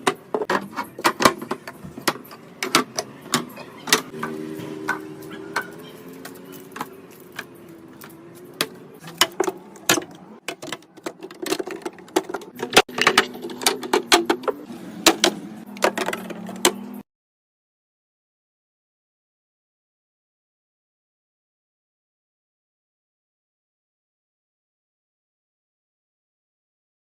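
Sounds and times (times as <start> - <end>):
containers clattering in refrigerator: 0.0 - 4.1, 4.9 - 16.9.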